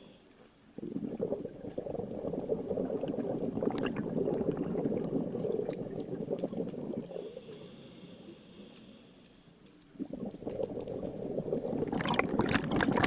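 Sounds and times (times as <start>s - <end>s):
small clicks and pops: 0.4s - 7.1s, 9.6s - 13.0s
regulator exhale bubbling: 0.8s - 9.0s, 10.0s - 13.0s.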